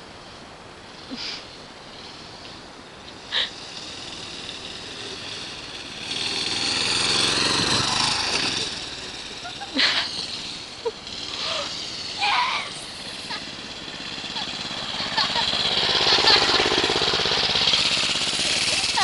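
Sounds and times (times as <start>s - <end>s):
dirt bike engine approaching: 0.0s - 19.0s.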